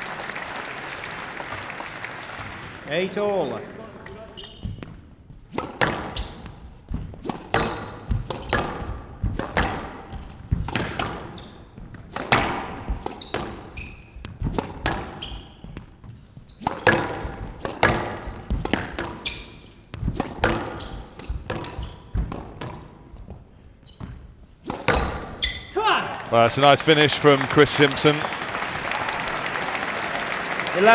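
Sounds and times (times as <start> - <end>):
court shoes squeaking: 0.3 - 30.9
squash ball cracking off walls: 5.6 - 13.7, 16.7 - 22.8, 24.7 - 25.4.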